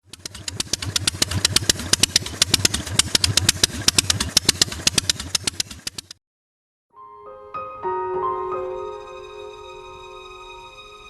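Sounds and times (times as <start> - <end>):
motorcycle engine running: 0.0 - 6.2.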